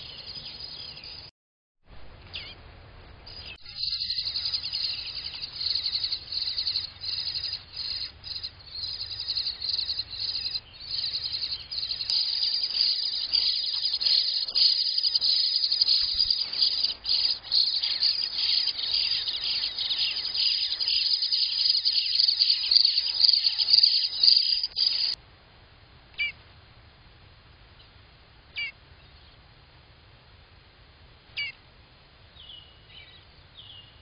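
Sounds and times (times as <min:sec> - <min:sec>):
nestlings cheeping: 0:03.3 - 0:25.2.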